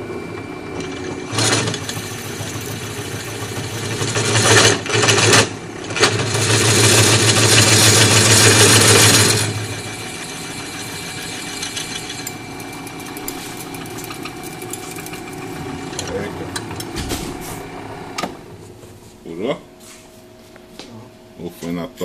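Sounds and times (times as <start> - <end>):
electric drill boring metal: 0.8 - 5.4, 6.0 - 16.2.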